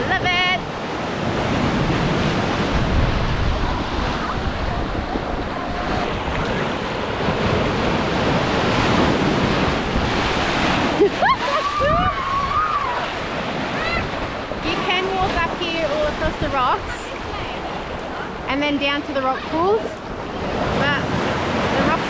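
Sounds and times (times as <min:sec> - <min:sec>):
waves breaking on beach: 0:00.0 - 0:22.0
wind buffeting microphone: 0:00.0 - 0:22.0.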